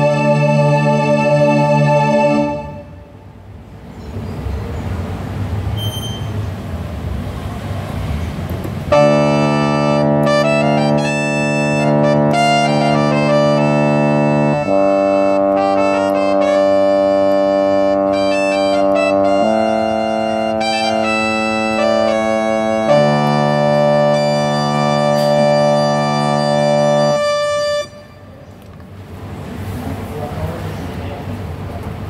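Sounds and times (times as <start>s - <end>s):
keyboard brass chords and melody: 0.0s - 3.4s, 8.9s - 28.4s.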